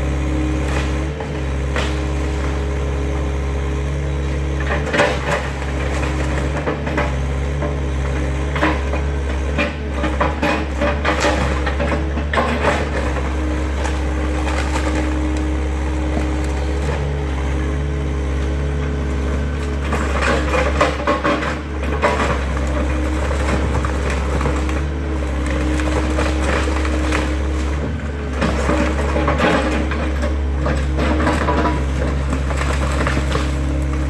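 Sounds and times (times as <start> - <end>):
excavator engine running: 0.0 - 34.0
debris crunching and knocking: 19.4 - 34.0.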